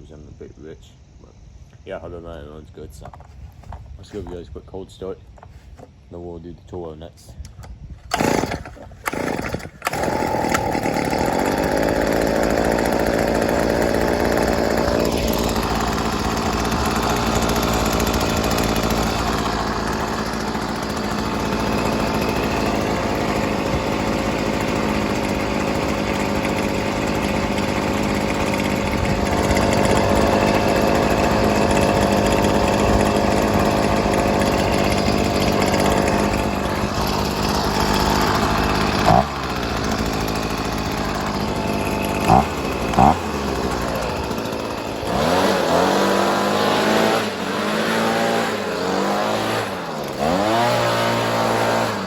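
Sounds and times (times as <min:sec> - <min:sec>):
leaf blower engine running: 0:08.1 - 0:52.0.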